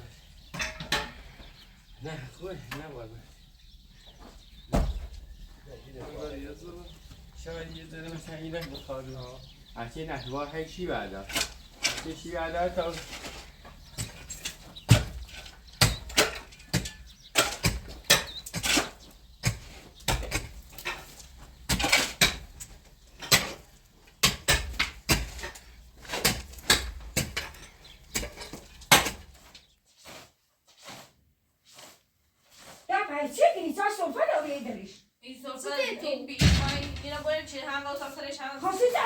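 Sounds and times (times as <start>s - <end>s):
hard knocks and clatter: 4.7s - 5.3s, 36.4s - 37.6s.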